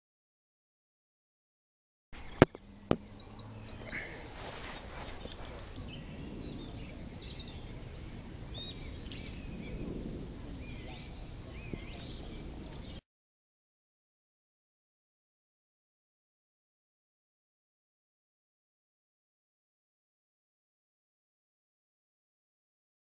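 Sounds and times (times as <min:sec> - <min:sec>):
outdoor background hiss: 0:02.2 - 0:13.0
small birds chirping: 0:02.2 - 0:13.0.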